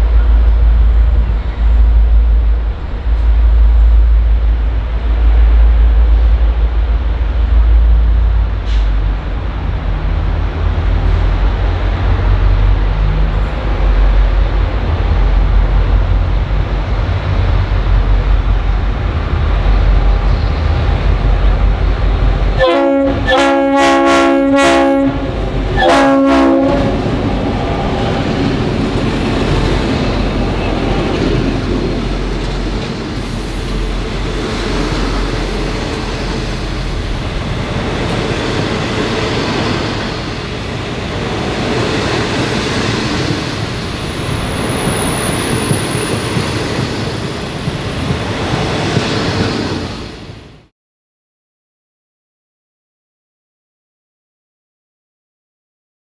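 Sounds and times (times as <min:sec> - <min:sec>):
locomotive engine rumbling: 0:00.0 - 0:49.2
multi-tone train horn: 0:22.6 - 0:27.1
train wheels rolling on rails: 0:24.8 - 0:50.6.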